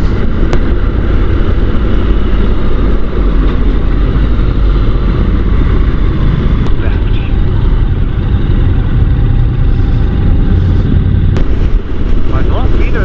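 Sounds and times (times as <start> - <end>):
low engine drone: 0.0 - 13.0
road noise: 0.0 - 13.0
wind rush: 0.0 - 13.0.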